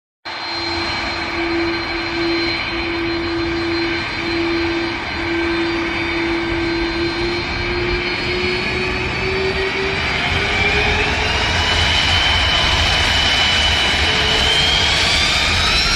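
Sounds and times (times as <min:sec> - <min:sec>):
jet engine whine: 0:00.3 - 0:15.9.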